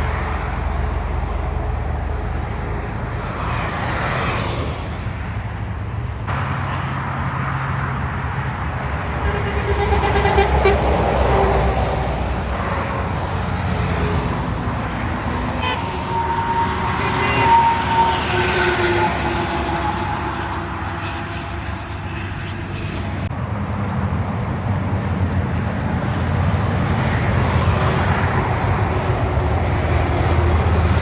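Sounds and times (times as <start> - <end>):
heavy trucks passing: 0.0 - 23.4, 25.0 - 31.0
vehicle horn: 9.0 - 23.3.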